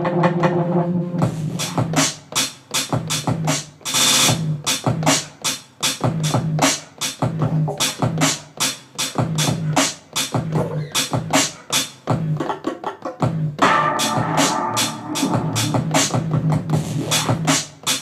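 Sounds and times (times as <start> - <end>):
drum machine pattern: 0.0 - 18.0
held pitched sample: 13.6 - 16.5
short low synth notes: 13.6 - 16.6.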